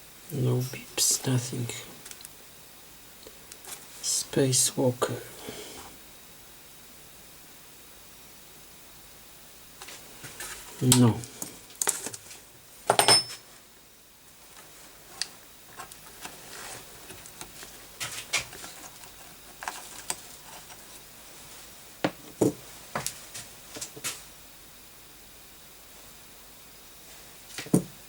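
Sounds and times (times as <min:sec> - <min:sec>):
metallic clinks: 0:13.0 - 0:13.4.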